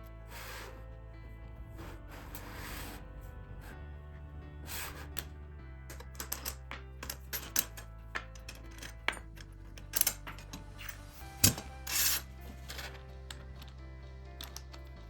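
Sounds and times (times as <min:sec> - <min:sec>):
background music: 0:00.0 - 0:15.0
small hard parts clicking: 0:04.6 - 0:15.0.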